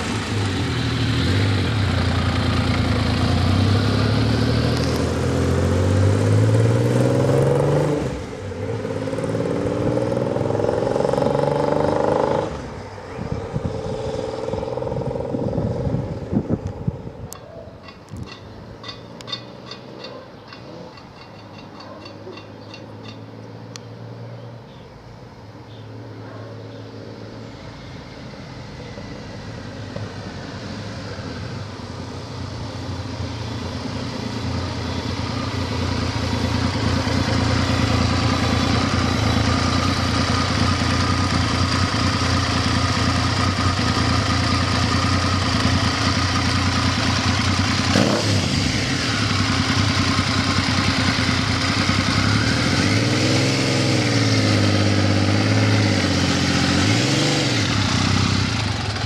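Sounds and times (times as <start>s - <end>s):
motorcycle engine running: 0.0s - 17.2s, 32.6s - 59.0s.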